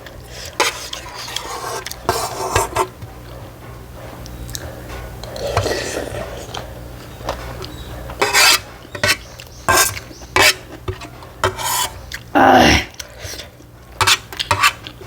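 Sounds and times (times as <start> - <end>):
eating noise: 0.0 - 15.0
utensils clinking against dishes: 4.4 - 12.3, 13.0 - 15.0.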